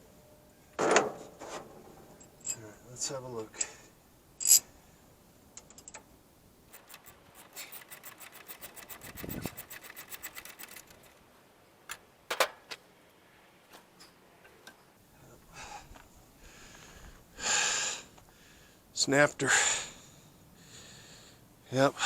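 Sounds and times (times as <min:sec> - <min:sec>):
ratchet wrench clicking: 0:06.7 - 0:10.9.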